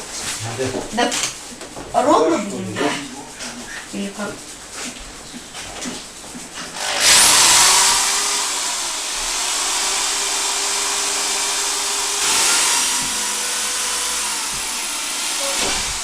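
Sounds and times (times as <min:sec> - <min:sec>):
power tool motor whining: 0:06.8 - 0:16.0.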